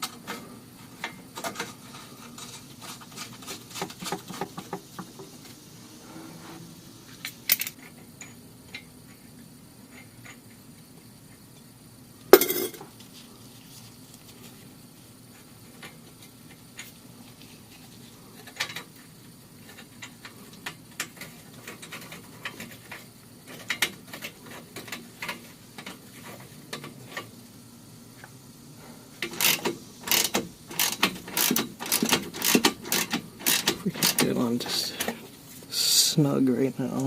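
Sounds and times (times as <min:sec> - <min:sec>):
nut tightening clicks: 0:29.2 - 0:34.4.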